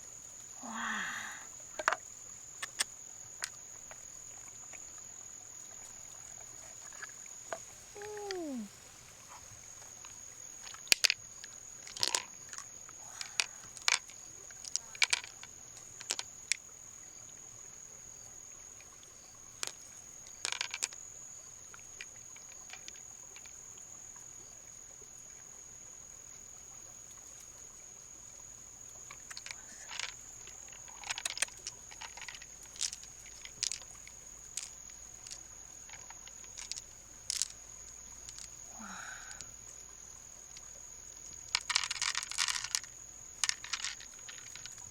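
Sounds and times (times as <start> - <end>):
shells clicking and knocking: 11.9 - 12.3, 30.8 - 34.0, 41.6 - 44.8.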